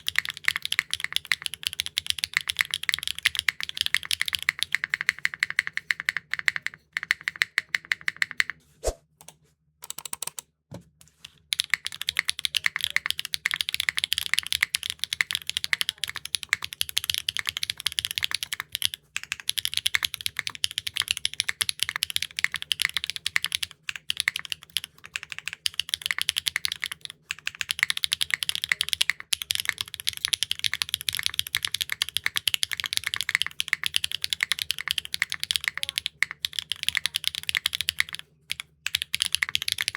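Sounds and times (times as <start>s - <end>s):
fast mechanical keyboard typing: 0.0s - 8.5s, 9.8s - 10.4s, 11.2s - 39.9s.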